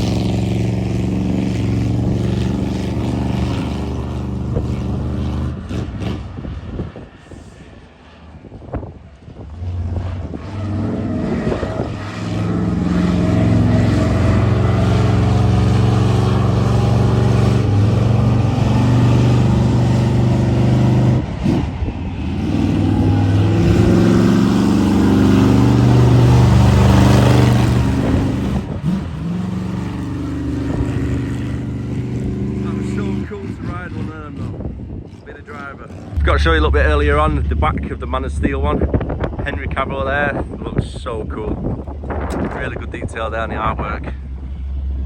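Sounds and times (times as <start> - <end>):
big vehicle engine running: 0.0 - 45.0.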